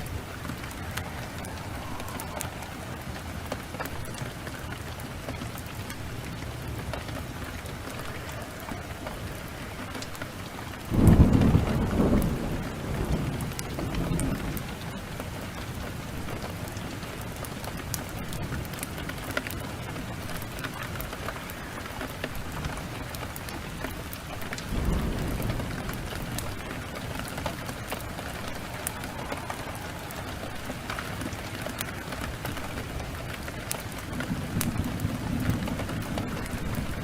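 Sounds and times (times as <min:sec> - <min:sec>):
thunder rumble: 0:00.0 - 0:16.9, 0:20.0 - 0:37.0
heavy rain falling: 0:00.0 - 0:37.0
wood fire crackling: 0:00.0 - 0:37.0.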